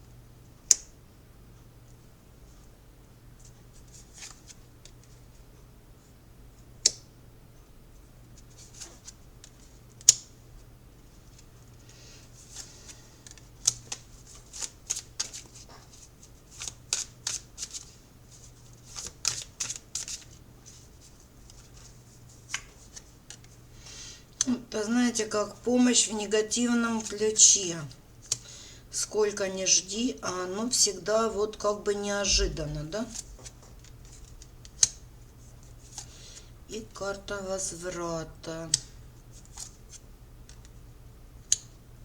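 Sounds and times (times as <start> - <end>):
cards sliding and flicking: 12.5 - 20.8.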